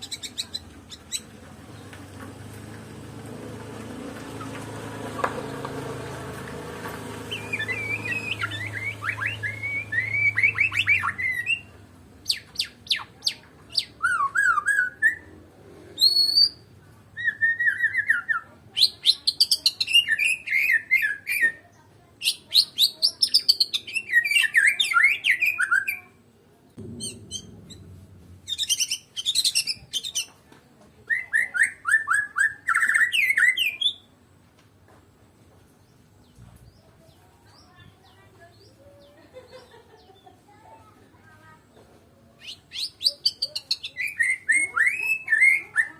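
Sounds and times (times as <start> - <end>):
songbird singing varied phrases: 0.0 - 1.9, 7.2 - 15.3, 16.0 - 26.1, 31.1 - 34.2, 42.3 - 45.9
low hum: 26.8 - 29.9.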